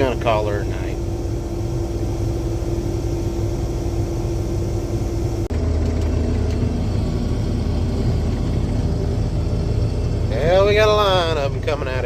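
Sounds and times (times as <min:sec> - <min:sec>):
harvester engine drone: 0:00.0 - 0:12.0
lower engine drone: 0:00.0 - 0:12.0
steady whine: 0:00.0 - 0:12.0.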